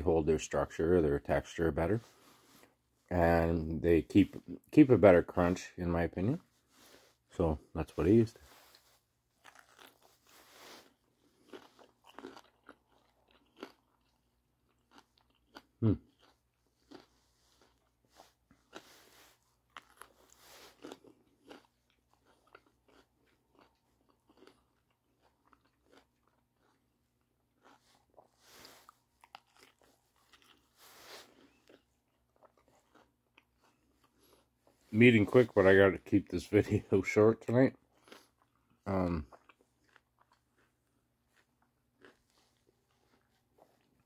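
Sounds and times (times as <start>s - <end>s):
chewing crunchy food: 8.4s - 35.7s, 36.6s - 44.0s.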